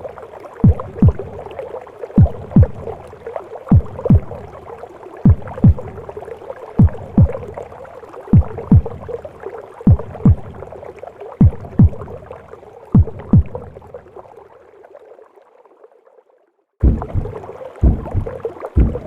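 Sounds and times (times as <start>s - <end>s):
heartbeat thumps: 0.6s - 1.4s, 2.2s - 3.0s, 3.7s - 4.5s, 5.2s - 6.1s, 6.8s - 7.6s, 8.3s - 9.2s, 9.9s - 10.7s, 11.4s - 12.2s, 12.9s - 13.8s, 16.8s - 19.0s
whooshing womb noise: 16.8s - 19.0s.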